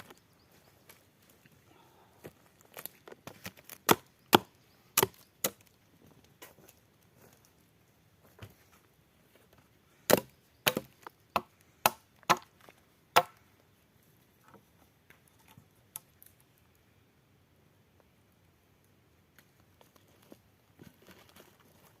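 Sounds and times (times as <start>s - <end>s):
wood chopping strikes: 3.7s - 5.7s, 10.1s - 13.4s.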